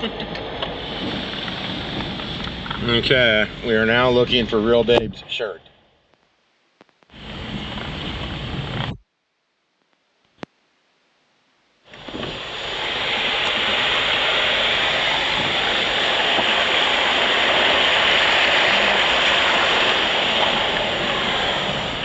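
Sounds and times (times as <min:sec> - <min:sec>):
rushing river water: 0:11.9 - 0:22.0.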